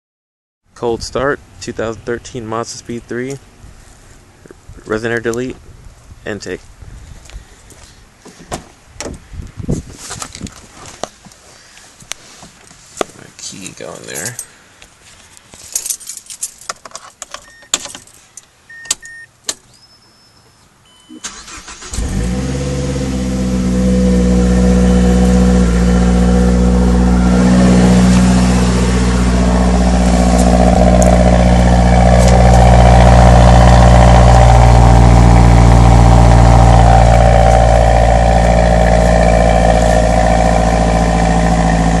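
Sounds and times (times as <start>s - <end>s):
keys jingling: 15.7s - 18.2s
car engine cranking: 21.2s - 42.0s
car engine idling: 21.3s - 42.0s.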